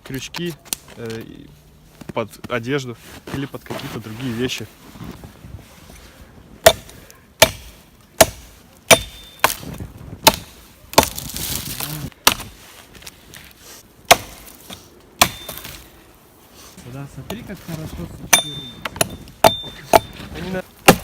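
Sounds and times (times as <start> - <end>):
axe chopping wood: 6.6 - 12.6, 14.1 - 15.9, 18.3 - 21.0.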